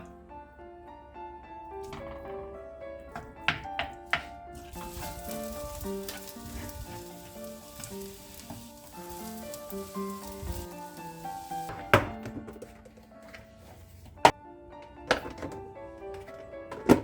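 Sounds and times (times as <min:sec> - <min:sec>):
background music: 0:00.0 - 0:17.0
food sizzling in a frying pan: 0:04.6 - 0:11.7.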